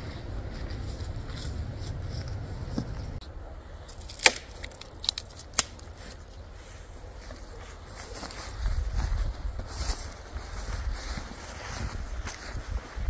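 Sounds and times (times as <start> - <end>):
low rumble: 0.0 - 3.5
sharp cracks: 3.9 - 6.0.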